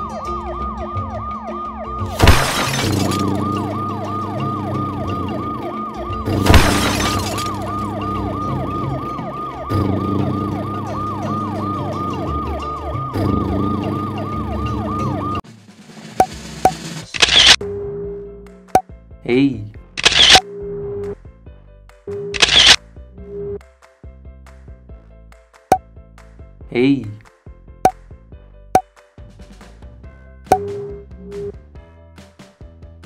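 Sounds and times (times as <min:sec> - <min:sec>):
background music: 0:00.0 - 0:06.6, 0:07.2 - 0:15.4, 0:17.6 - 0:33.0
loud crashes: 0:02.2 - 0:03.4, 0:06.3 - 0:07.7
siren-like falling tone: 0:03.1 - 0:06.4, 0:07.5 - 0:15.4.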